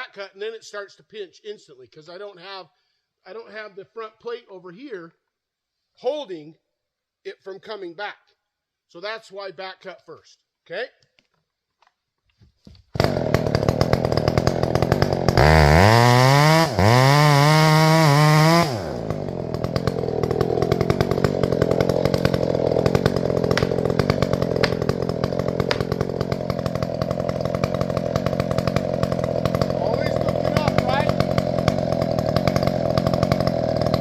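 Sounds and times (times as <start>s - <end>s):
chainsaw revving: 12.9s - 34.0s.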